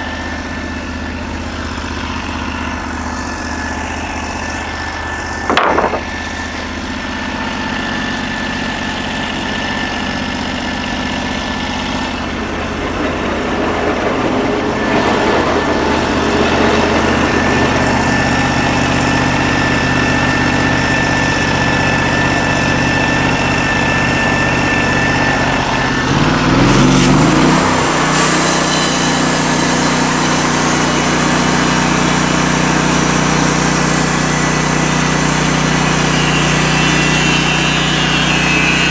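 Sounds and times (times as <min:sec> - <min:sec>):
sawmill engine running: 0:00.0 - 0:38.9
loud knock: 0:05.5 - 0:06.3.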